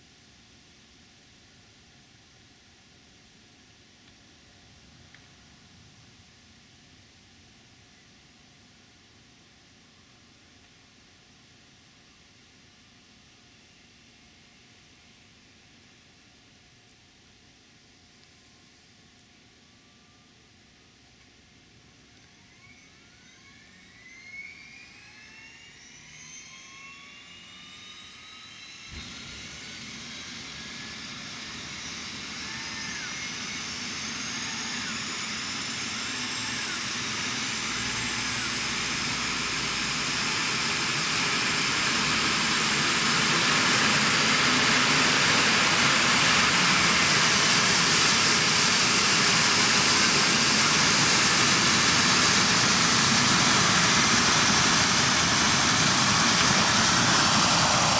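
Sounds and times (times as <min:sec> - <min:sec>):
helicopter turbine engine whine: 0:21.9 - 0:57.9.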